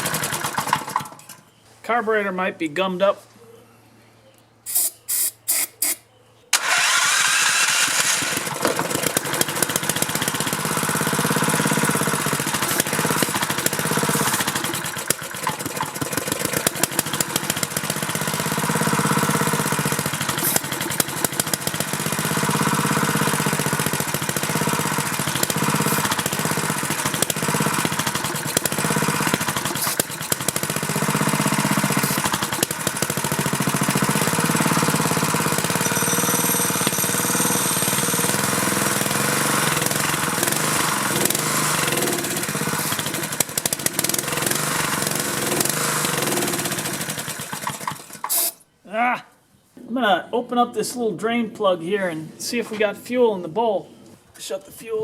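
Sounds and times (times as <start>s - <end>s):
small engine cranking and running: 0.0s - 1.3s, 6.5s - 48.6s.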